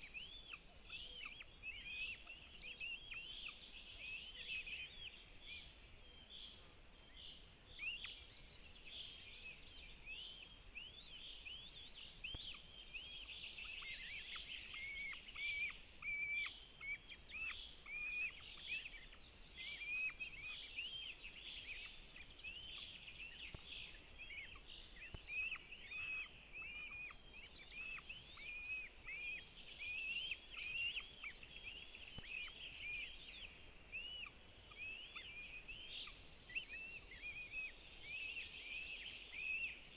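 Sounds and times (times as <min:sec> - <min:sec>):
hawk chicks begging calls: 0:24.0 - 0:31.3.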